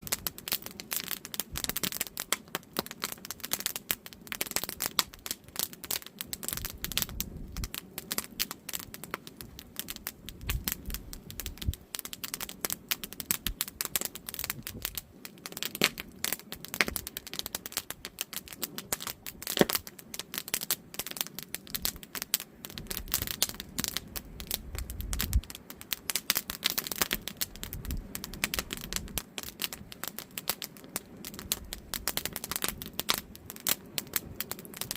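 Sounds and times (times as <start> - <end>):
campfire crackling: 0.0 - 34.9
sharp wood pops: 15.7 - 16.1, 19.0 - 19.9.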